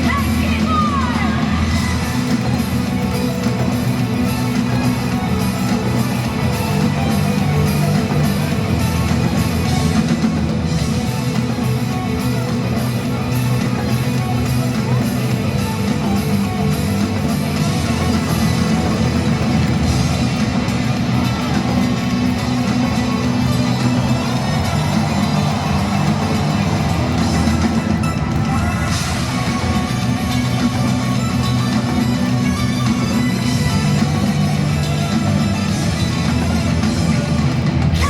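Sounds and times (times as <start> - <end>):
bass guitar: 0.0 - 38.0
distorted electric guitar: 0.0 - 38.0
drum kit: 0.0 - 38.0.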